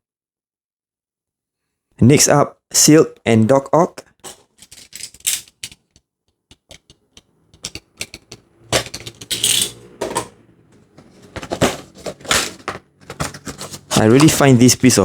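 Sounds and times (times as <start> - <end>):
packaging clicks and taps: 4.2 - 14.6
paper rustling: 6.5 - 9.6, 10.7 - 15.0.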